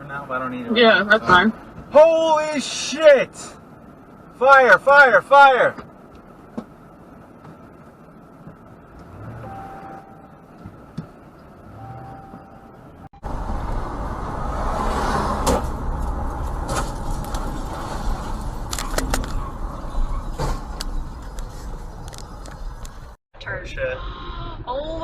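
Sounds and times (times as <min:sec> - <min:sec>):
car engine and road rumble: 0:00.0 - 0:23.8
short steady beep: 0:09.4 - 0:10.3, 0:11.7 - 0:12.8.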